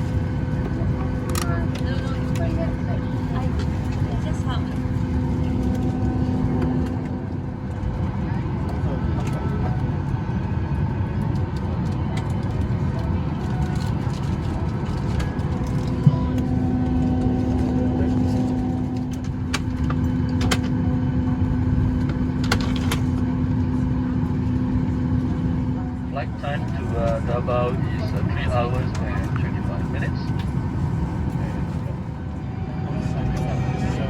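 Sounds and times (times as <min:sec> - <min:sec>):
air-conditioning rumble: 0:00.0 - 0:34.0
steady hum: 0:14.6 - 0:34.0.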